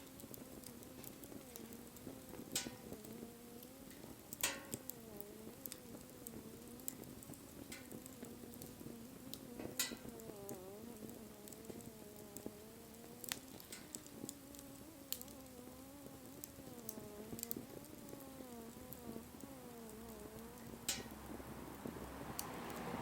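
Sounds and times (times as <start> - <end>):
sharp pops from fire: 0.0 - 23.0
wood fire crackling: 0.0 - 23.0.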